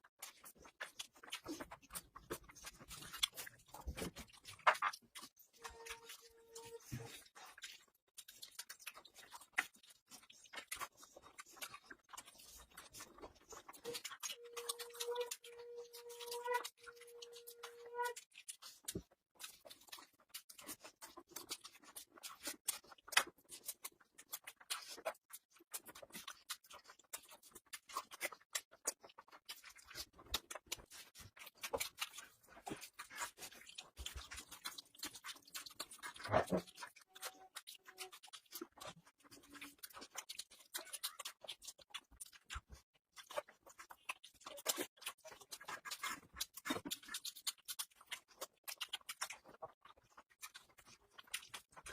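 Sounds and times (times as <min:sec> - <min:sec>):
person chewing with mouth clicks: 0:00.2 - 0:51.9.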